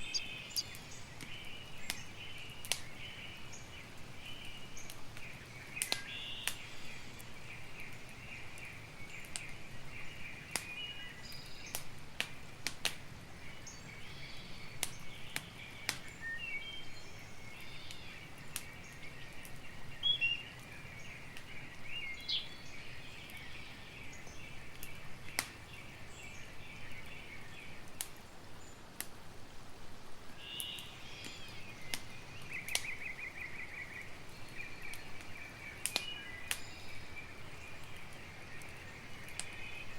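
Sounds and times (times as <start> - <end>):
insects chorus: 0.0 - 0.8
bird chirps: 0.0 - 1.6
campfire crackling and popping: 0.0 - 14.0, 14.7 - 16.2, 17.8 - 19.7, 20.5 - 23.5, 24.1 - 27.2, 27.8 - 28.3, 28.9 - 29.2, 30.6 - 39.9.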